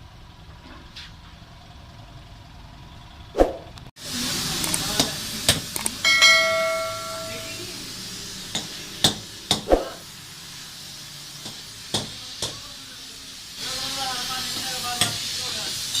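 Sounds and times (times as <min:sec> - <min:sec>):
steady hiss: 0:04.0 - 0:16.0.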